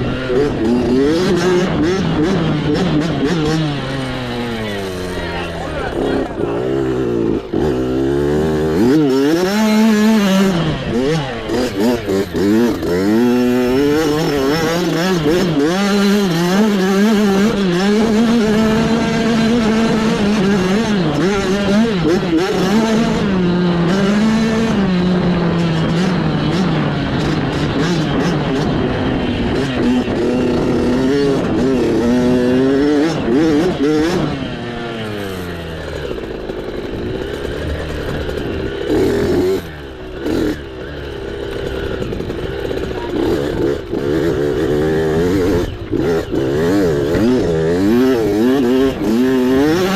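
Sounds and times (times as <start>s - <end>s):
mini bike engine revving: 0.0s - 49.9s.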